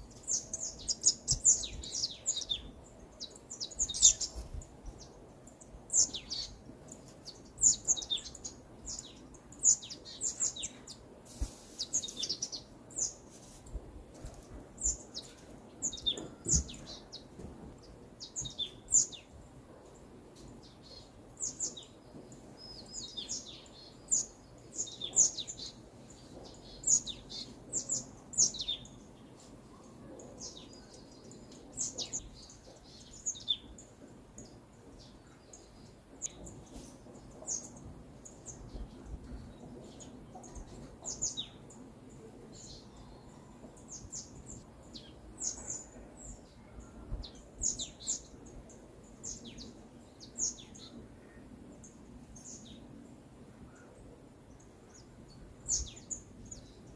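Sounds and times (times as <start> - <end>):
faint low hiss: 0.0 - 56.9
songbirds chirping: 0.0 - 56.9.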